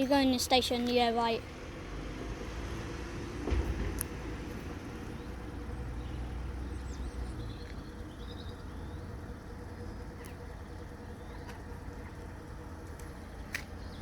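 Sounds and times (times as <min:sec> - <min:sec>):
train rumbling slowly: 0:00.0 - 0:14.0
bird chirps: 0:05.1 - 0:11.8.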